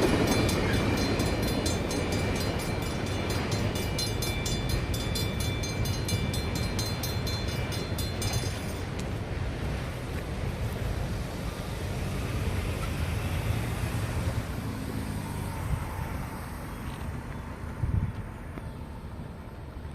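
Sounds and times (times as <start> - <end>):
crossing bell ringing: 0.0 - 9.2
train rumbling: 0.0 - 19.9.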